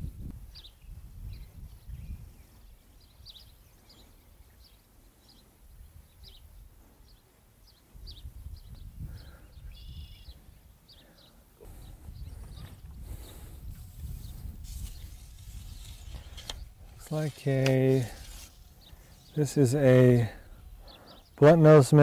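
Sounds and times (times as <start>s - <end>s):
small birds chirping: 0.0s - 22.0s
longer bird call: 6.2s - 13.4s.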